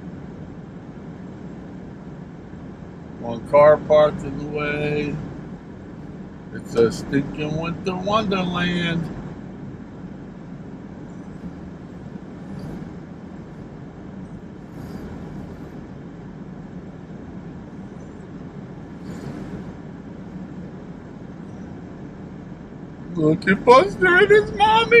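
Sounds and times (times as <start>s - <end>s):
car road and engine noise: 0.0s - 25.0s
brief hissing swells: 19.0s - 19.8s.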